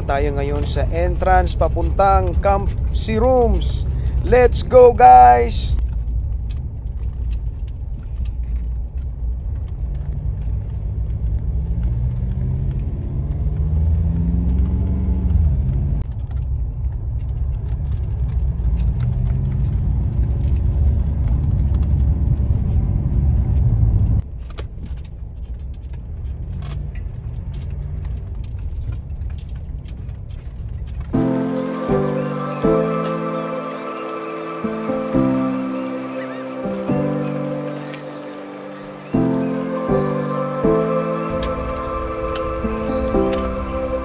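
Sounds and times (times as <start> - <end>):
car engine pulling under load: 5.8 - 24.6
light rattles and clicks: 23.6 - 31.2.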